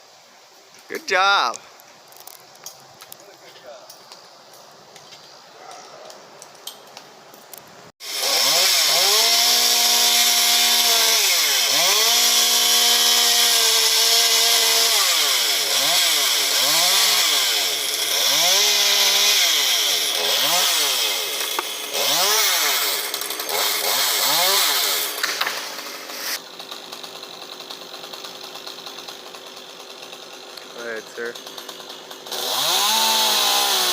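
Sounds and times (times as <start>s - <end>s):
chainsaw cutting wood: 8.0s - 33.9s.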